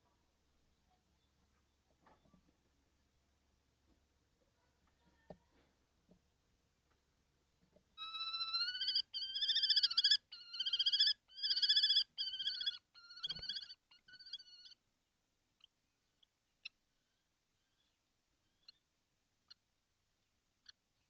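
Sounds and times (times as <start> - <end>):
kestrel trilled whining calls: 8.0 - 14.8.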